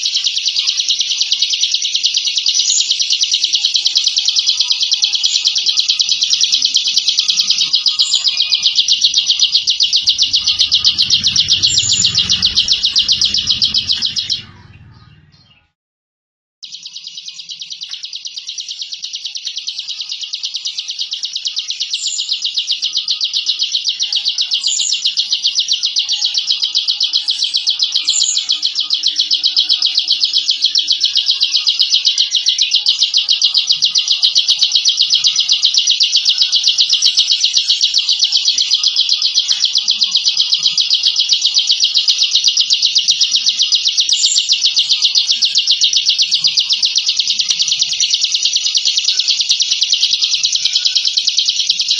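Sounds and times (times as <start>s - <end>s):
bird buzzing trill: 7.8s - 15.6s.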